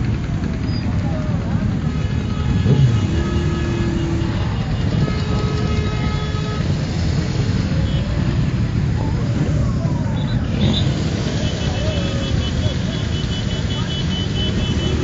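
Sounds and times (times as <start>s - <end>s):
motorcycle engines and wind: 0.0s - 15.0s
higher horn: 1.8s - 6.8s
vehicle horn: 1.8s - 8.2s, 10.2s - 15.0s.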